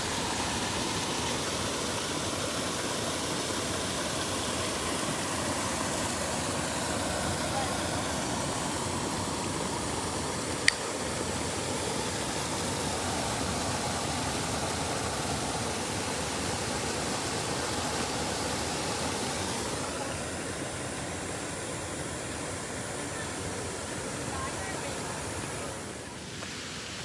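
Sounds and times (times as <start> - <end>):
creek water flowing: 0.0 - 27.0
sharp click: 10.6 - 10.9.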